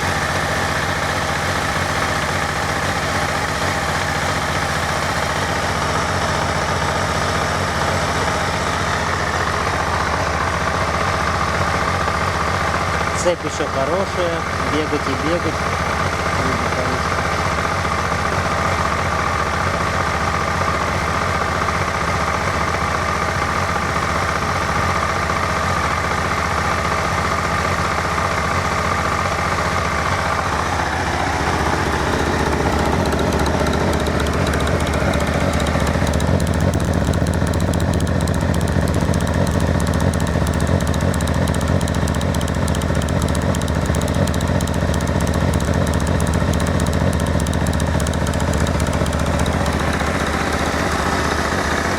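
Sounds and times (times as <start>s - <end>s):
motorcycle engine idling: 30.3s - 51.9s.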